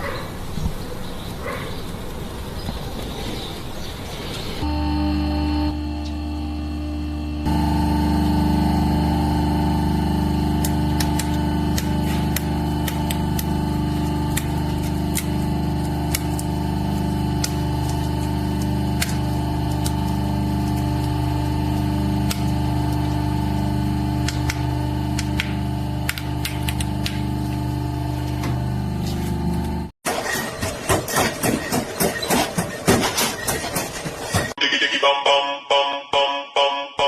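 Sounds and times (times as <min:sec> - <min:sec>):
machine humming: 0:04.6 - 0:30.0.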